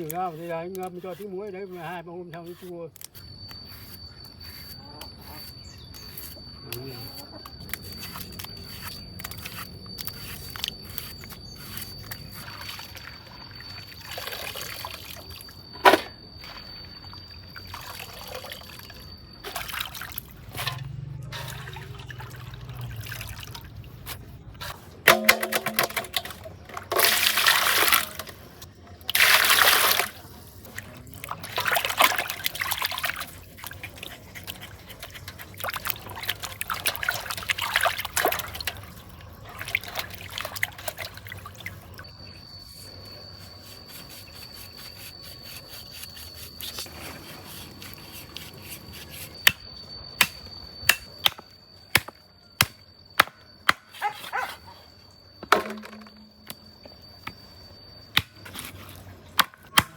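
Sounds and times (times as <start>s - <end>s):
steady high whine: 46.2s - 59.9s.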